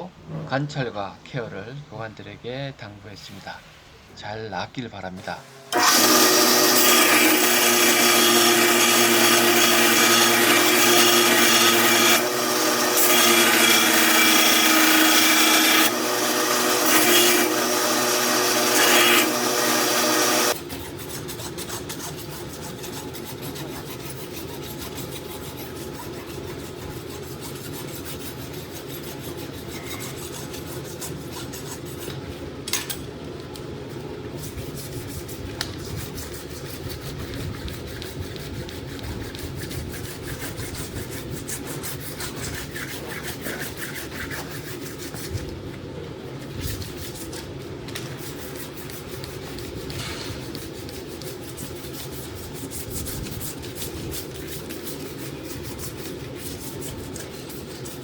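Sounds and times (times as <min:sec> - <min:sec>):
small power tool running: 0:05.7 - 0:20.6
rasp scraping hoof: 0:29.0 - 0:30.5.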